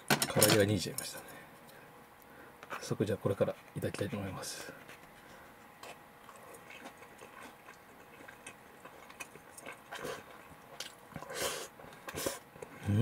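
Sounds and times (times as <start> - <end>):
person chewing: 4.9 - 12.8.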